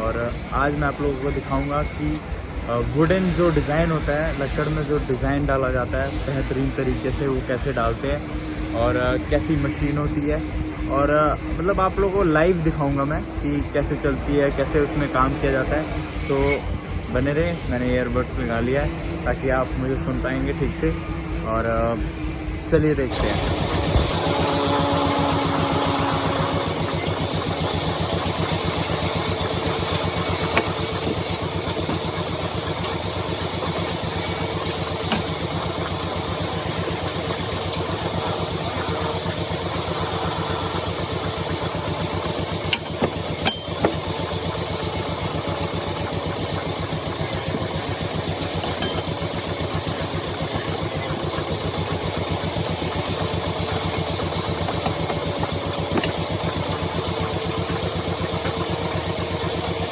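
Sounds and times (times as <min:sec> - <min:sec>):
woodturning lathe running: 0:00.0 - 0:59.9.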